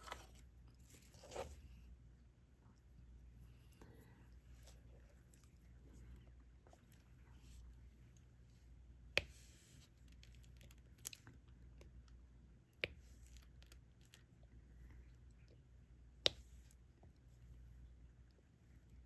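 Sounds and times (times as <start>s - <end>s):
faint scratching and rustling: 0.0s - 1.9s
low steady hum: 0.0s - 19.0s.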